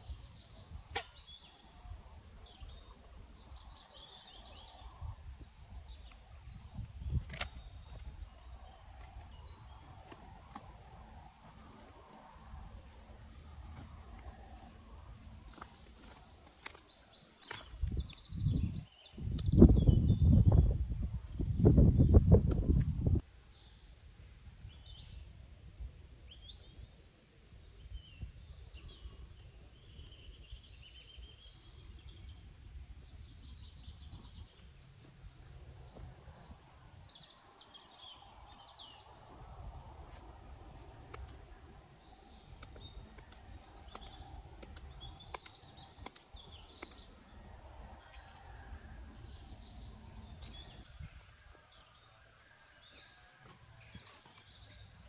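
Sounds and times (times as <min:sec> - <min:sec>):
small birds chirping: 0:00.0 - 0:55.0
sharp clicks: 0:42.5 - 0:47.2.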